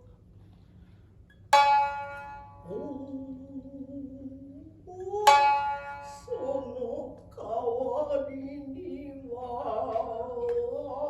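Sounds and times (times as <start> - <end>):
shamisen plucked notes: 1.5 - 3.2, 5.2 - 6.5.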